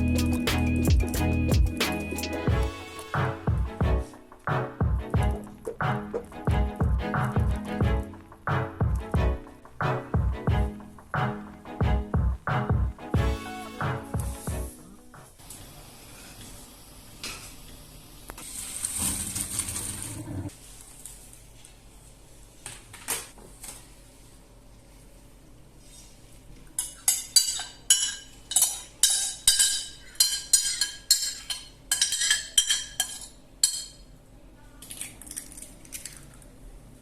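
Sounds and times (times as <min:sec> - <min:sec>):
metal utensil clinking on dish: 0:26.8 - 0:34.0.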